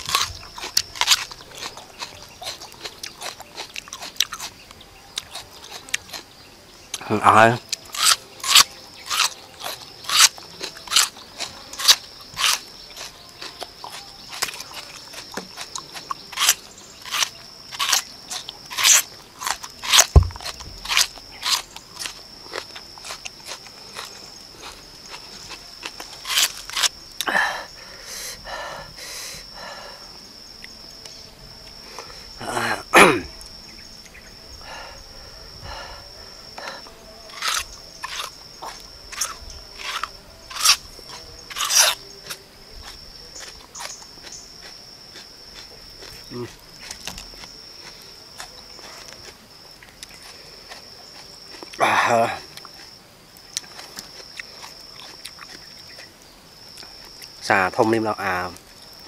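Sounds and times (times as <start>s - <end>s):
onion crunching being chewed: 0.0s - 6.3s, 7.6s - 27.3s, 36.6s - 56.1s.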